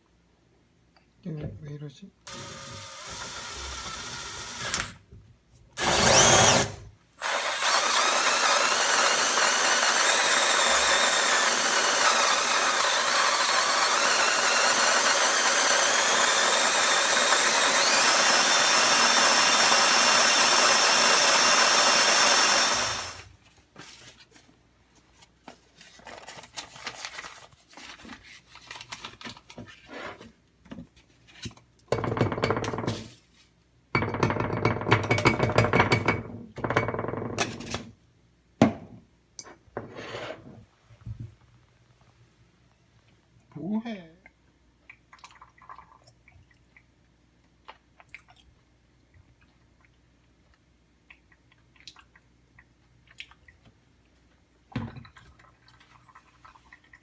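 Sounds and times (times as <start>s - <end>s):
coffee grinder grinding beans: 2.3s - 5.0s, 5.8s - 23.3s.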